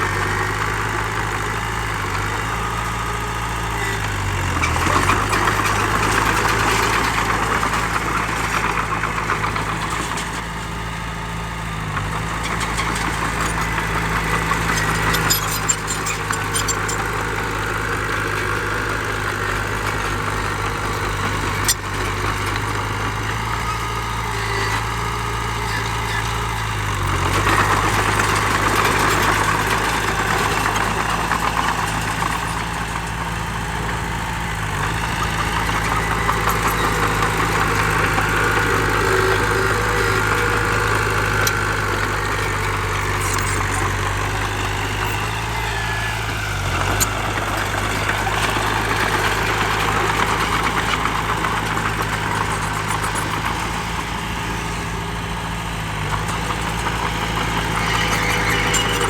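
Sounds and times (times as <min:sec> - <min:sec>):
heavy diesel engines running: 0:00.0 - 0:59.0.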